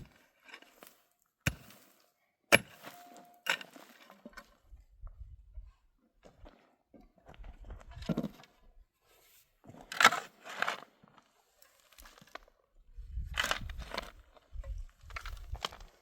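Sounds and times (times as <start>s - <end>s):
crunching scraping sounds: 9.6s - 16.0s.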